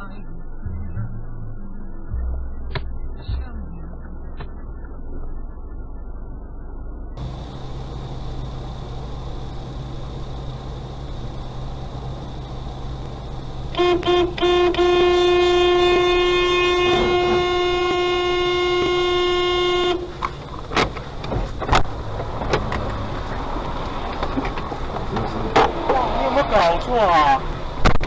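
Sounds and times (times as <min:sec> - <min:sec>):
low hum: 0:00.0 - 0:28.0
car horn honking: 0:13.7 - 0:20.4.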